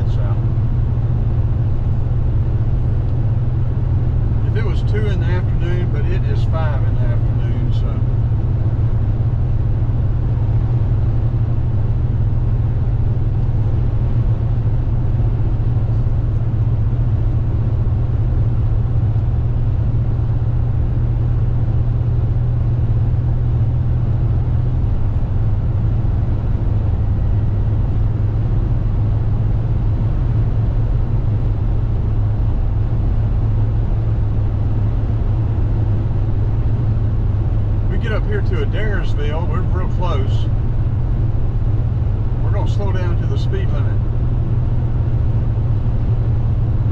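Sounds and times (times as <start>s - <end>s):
car engine and tyre drone: 0.0s - 46.9s.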